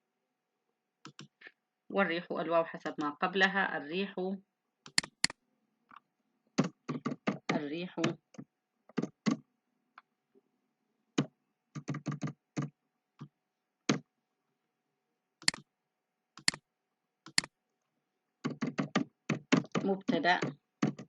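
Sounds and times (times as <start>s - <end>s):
keyboard keys clicking: 17.3s - 17.5s.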